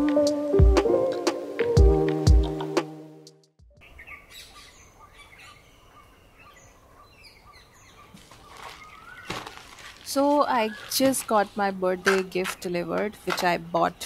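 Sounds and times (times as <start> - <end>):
background music with a beat: 0.0 - 3.7
faint birds chirping: 3.7 - 14.0.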